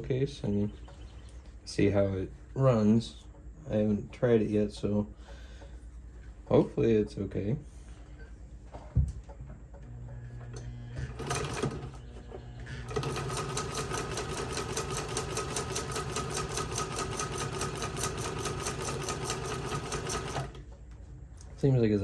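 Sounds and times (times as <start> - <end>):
sewing machine knocks: 11.0 - 12.0, 12.9 - 20.6
sewing machine clatter: 11.1 - 12.0, 12.8 - 20.6.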